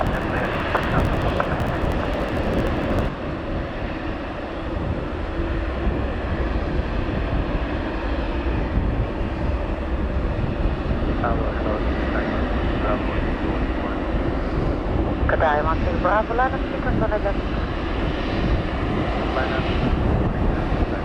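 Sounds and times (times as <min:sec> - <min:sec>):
crackly hiss: 0:00.0 - 0:03.1
jet engines rumbling: 0:00.0 - 0:03.2.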